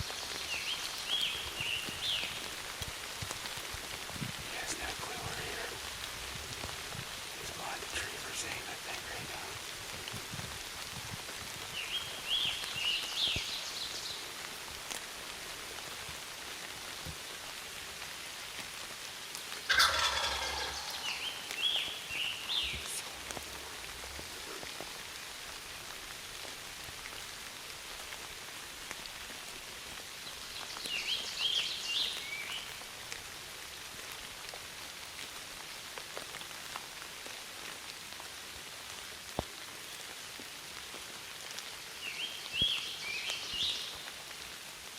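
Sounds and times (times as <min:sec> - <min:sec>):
steady rain: 0:00.0 - 0:44.9
wild turkey gobbling: 0:19.7 - 0:21.5.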